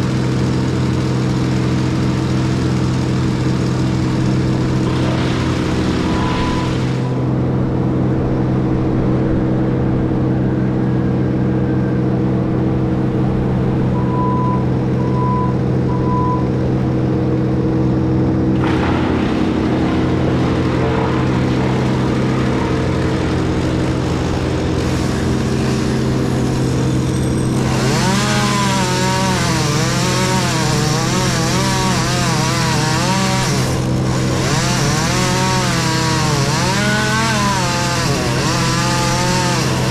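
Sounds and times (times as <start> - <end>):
heavy diesel machinery running: 0.0 - 39.9
wood chipper grinding wood: 0.0 - 39.9
short beeps: 6.1 - 6.8, 14.0 - 16.5.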